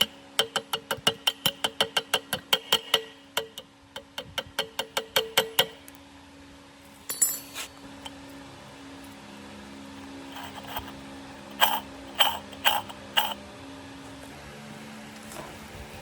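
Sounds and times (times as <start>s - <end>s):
metal clink and scrape: 7.0s - 7.8s, 10.3s - 13.4s.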